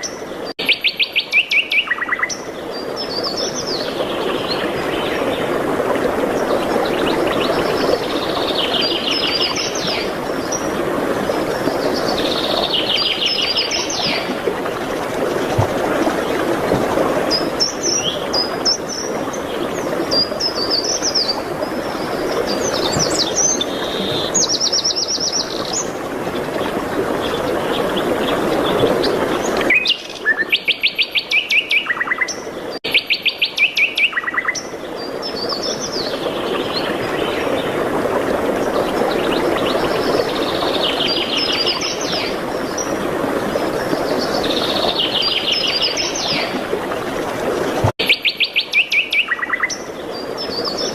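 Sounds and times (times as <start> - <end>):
songbirds chirping and trilling: 47.6 - 50.9.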